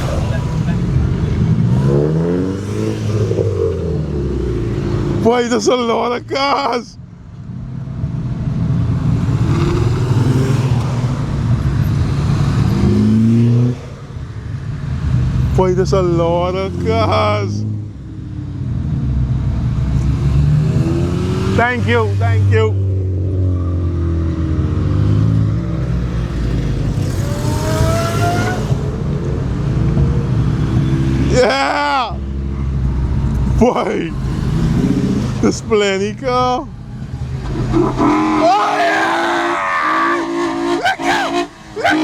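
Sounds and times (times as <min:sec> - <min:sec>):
car engine running: 0:00.0 - 0:05.4
car engine revving: 0:00.0 - 0:06.2, 0:08.2 - 0:42.0
car engines running: 0:00.0 - 0:42.0.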